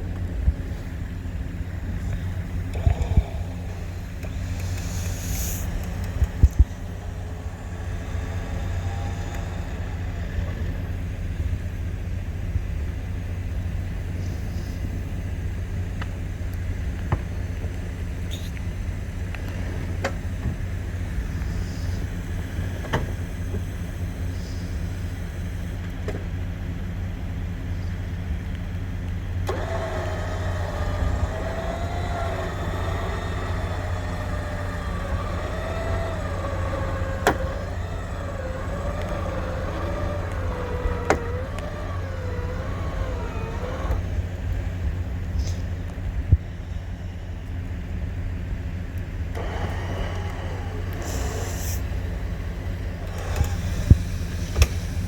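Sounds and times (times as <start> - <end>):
electric winch motor whining: 0.0 - 15.2, 29.2 - 45.8, 48.6 - 55.0
vehicle engine idling: 0.0 - 55.0
scattered clicks: 2.1 - 6.9.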